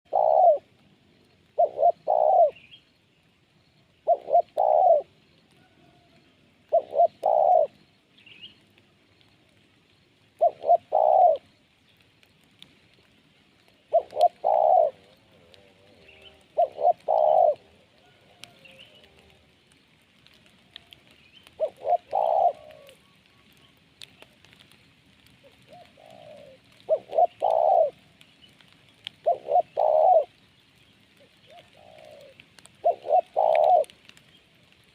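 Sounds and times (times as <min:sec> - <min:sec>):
dove cooing: 0:00.1 - 0:00.8, 0:01.4 - 0:02.7, 0:03.9 - 0:07.9, 0:10.4 - 0:11.5, 0:13.7 - 0:19.6, 0:20.4 - 0:24.4, 0:25.4 - 0:30.4, 0:31.2 - 0:34.7.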